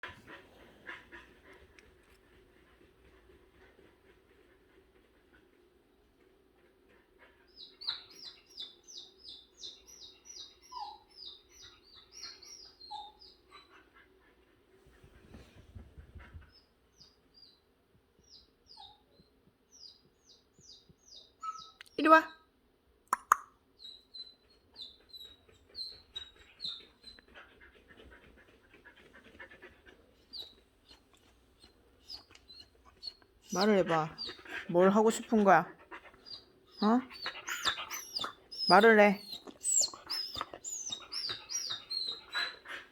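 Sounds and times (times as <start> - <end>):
dog panting: 0.0 - 8.8, 9.7 - 16.9, 24.3 - 42.9
dog whining: 30.3 - 34.8, 35.4 - 42.9.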